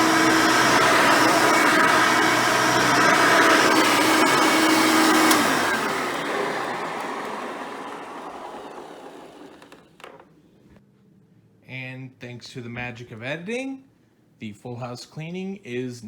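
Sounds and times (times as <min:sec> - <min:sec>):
upright vacuum cleaner running: 0:00.0 - 0:10.2.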